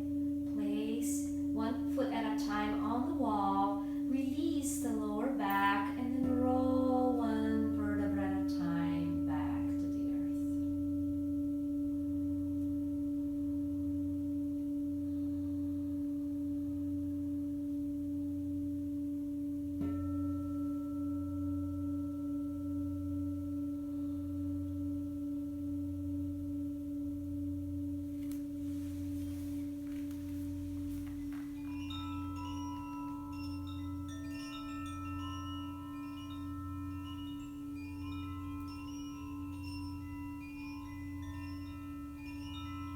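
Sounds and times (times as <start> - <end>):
pulsing low hum: 0.0 - 42.9
singing bowl ringing: 0.0 - 42.9
chimes tinkling: 28.1 - 42.9.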